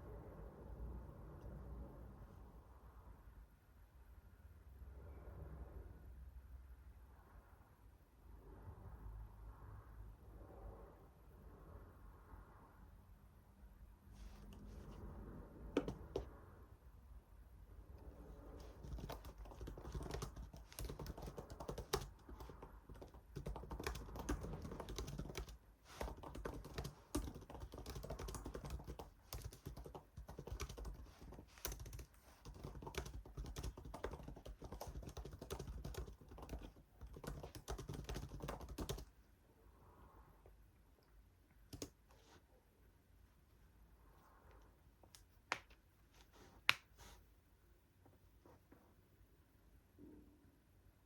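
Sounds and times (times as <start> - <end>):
typing on computer keyboard: 15.8 - 16.3, 18.6 - 39.1, 41.7 - 42.0.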